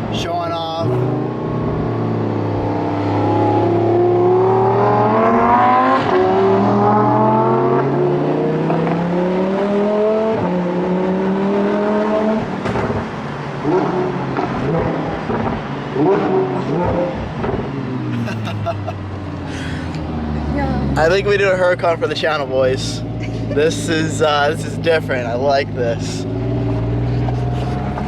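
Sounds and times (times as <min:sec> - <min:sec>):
sports car accelerating hard: 0:00.8 - 0:28.0
exhaust cracks and pops: 0:12.6 - 0:13.2.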